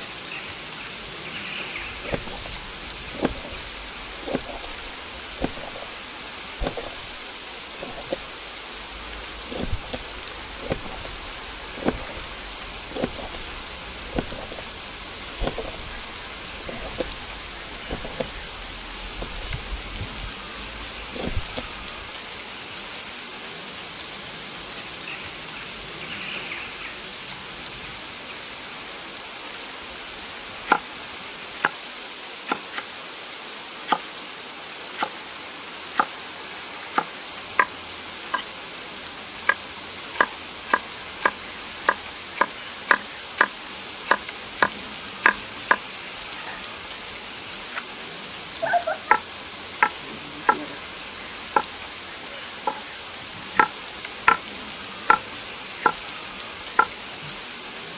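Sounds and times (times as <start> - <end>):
rain hissing: 0.0 - 57.9.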